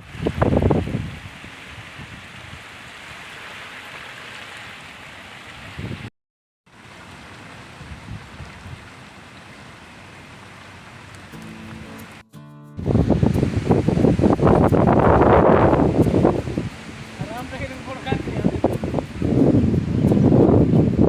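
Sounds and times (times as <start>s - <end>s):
wind gusts on microphone: 0.0s - 3.2s, 5.5s - 6.1s, 7.7s - 9.0s, 12.8s - 21.0s
heavy rain: 12.9s - 21.0s.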